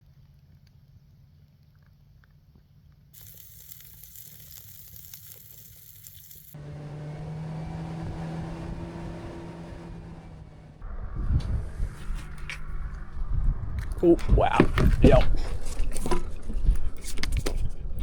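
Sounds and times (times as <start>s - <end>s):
food sizzling in a pan: 3.2s - 6.6s.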